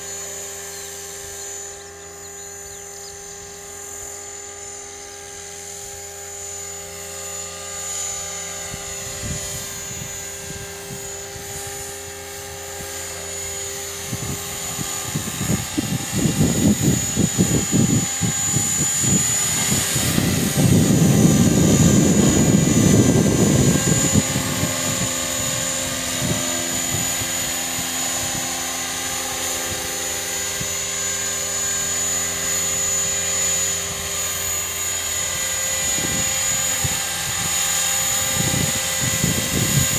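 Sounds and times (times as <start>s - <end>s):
rc helicopter whine: 0.0s - 39.9s
wind rumbling on microphone: 8.1s - 39.9s.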